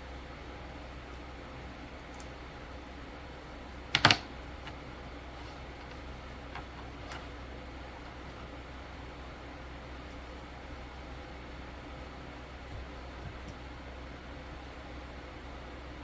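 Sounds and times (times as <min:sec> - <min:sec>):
white-noise hiss: 0:00.0 - 0:16.0
clicks: 0:03.9 - 0:04.8.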